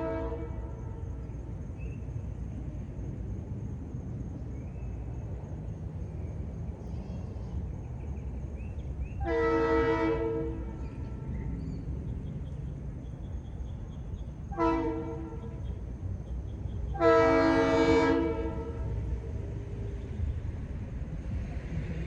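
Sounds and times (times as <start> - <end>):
locomotive horn blasts: 0.0 - 1.2, 9.2 - 11.3, 14.5 - 15.7, 16.9 - 19.1
train rumble: 0.0 - 22.0.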